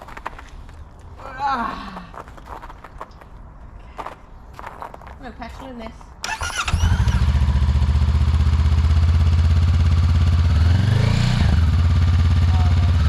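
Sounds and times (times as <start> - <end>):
motorcycle electric starter cranking: 6.2 - 7.4
motorcycle engine revving: 6.2 - 13.0
motorcycle engine idling: 6.3 - 13.0.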